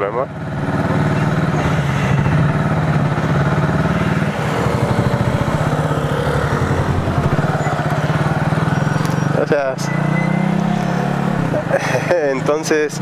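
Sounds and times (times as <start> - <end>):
motorcycle engine idling: 0.3 - 9.5.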